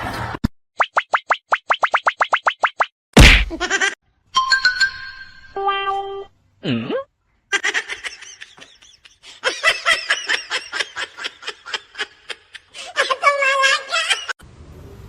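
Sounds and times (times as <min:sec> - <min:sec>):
laughter in quick bursts: 0:07.5 - 0:14.4.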